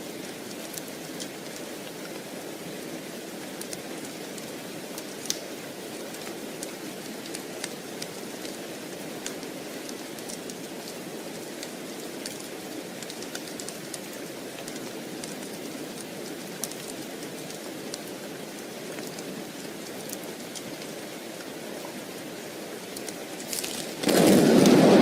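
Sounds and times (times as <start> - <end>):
steady rain hiss: 0.0 - 25.0
small sharp ticks: 3.6 - 3.8, 5.0 - 5.5, 9.2 - 21.5, 22.9 - 24.8.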